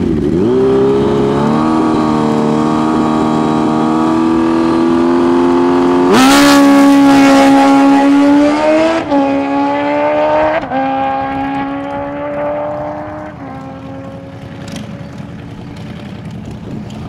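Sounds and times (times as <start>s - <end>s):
motorcycle engine at full throttle: 0.0s - 17.0s.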